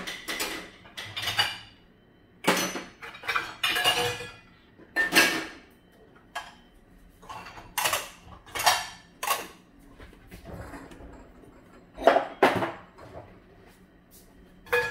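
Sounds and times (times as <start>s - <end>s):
dishes and cutlery clattering: 0.0s - 1.8s, 2.4s - 5.7s, 6.3s - 9.7s, 10.3s - 13.3s, 14.6s - 14.9s.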